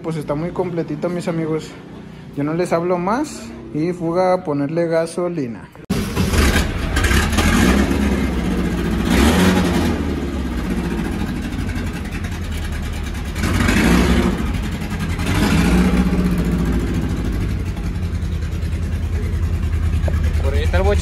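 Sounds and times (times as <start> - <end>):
car engine idling: 5.9 - 21.0
engine throttle blips: 5.9 - 21.0.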